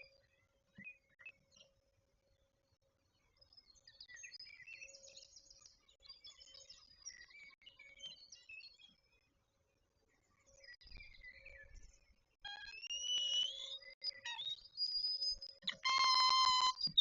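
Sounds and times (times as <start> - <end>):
birds chirping: 12.5 - 17.0.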